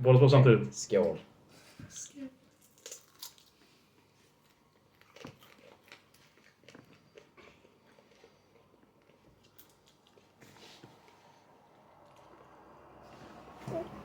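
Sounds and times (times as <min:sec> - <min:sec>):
people chewing crunchy peppers: 0:02.5 - 0:13.2.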